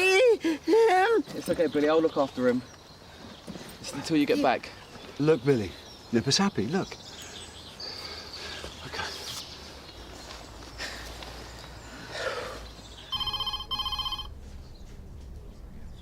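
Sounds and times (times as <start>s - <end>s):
faint outdoor background: 0.0s - 16.0s
telephone ringing: 13.1s - 14.4s.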